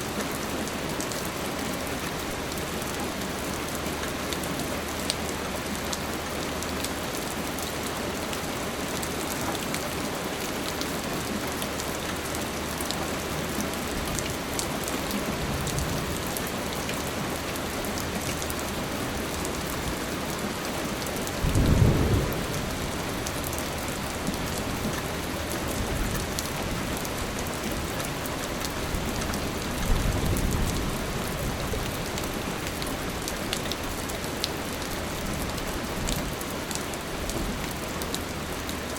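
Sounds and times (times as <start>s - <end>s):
thunder rumbling: 21.4s - 24.6s.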